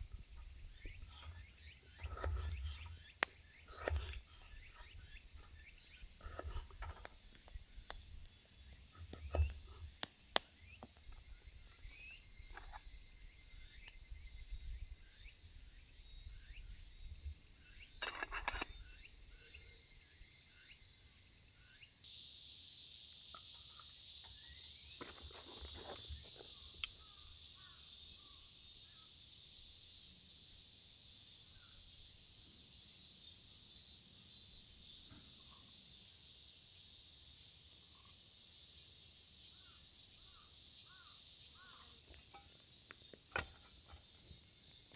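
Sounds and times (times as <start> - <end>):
insects singing high-pitched: 0.0 - 14.2
bird chirps: 0.0 - 15.4.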